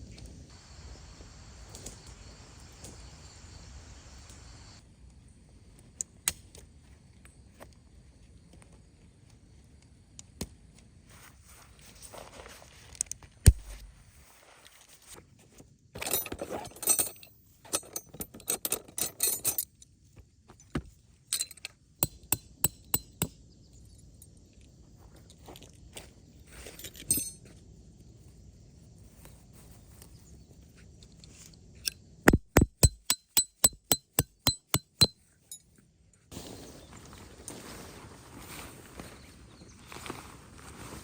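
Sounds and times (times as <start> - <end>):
rustling of gear: 11.2 - 19.7
hammering metal tent stakes: 22.0 - 23.4, 32.3 - 35.2.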